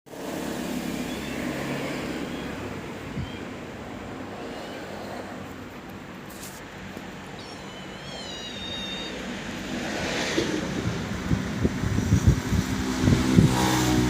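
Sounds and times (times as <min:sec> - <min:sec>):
cat meowing: 0:01.0 - 0:03.6, 0:04.2 - 0:05.4, 0:07.2 - 0:09.6.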